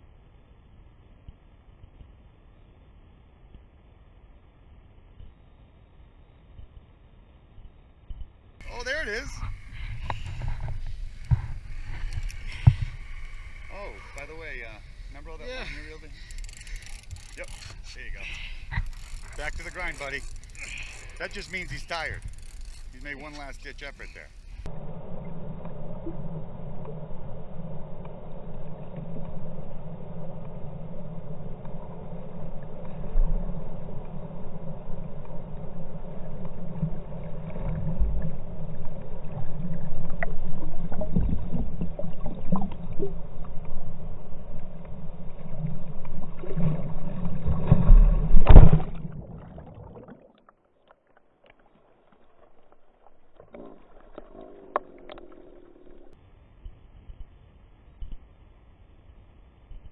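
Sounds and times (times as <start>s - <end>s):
boat engine humming: 8.6s - 47.6s
faint clicks: 9.6s - 15.0s, 16.0s - 24.7s.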